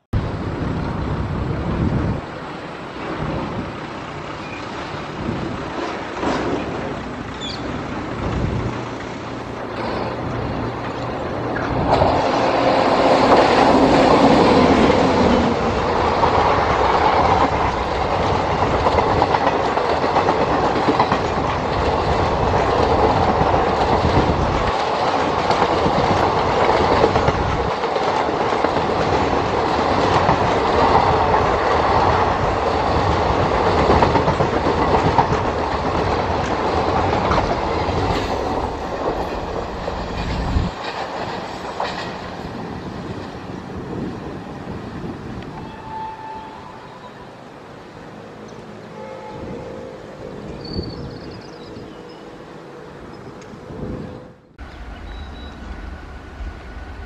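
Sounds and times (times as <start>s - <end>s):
electric locomotive passing: 0.2s - 57.0s
train wheels clattering on rails: 2.6s - 46.4s.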